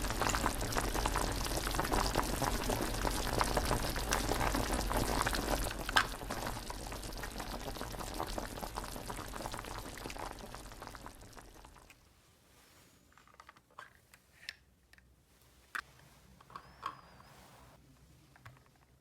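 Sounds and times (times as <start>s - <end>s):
crackling and bubbling: 0.0s - 12.1s.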